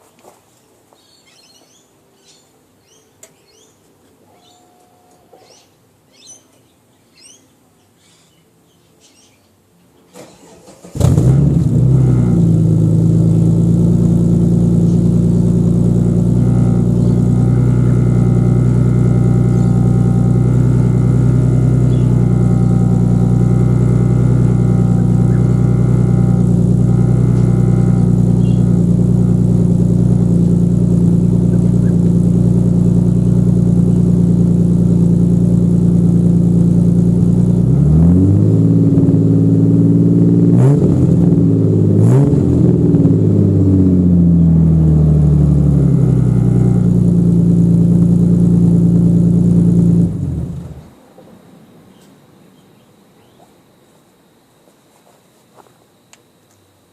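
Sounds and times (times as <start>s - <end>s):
car engine starting and idling: 10.2s - 51.0s
car engine revving: 10.6s - 51.0s.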